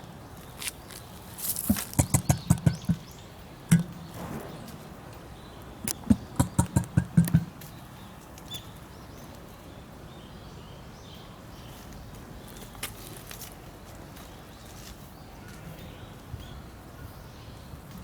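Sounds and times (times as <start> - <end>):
emu low drumming call: 1.7 - 3.1, 3.7 - 4.2, 5.9 - 7.6.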